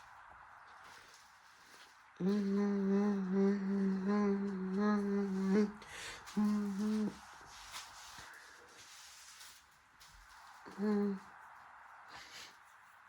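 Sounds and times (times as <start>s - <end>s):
person humming low note: 2.2s - 7.3s, 10.6s - 11.3s.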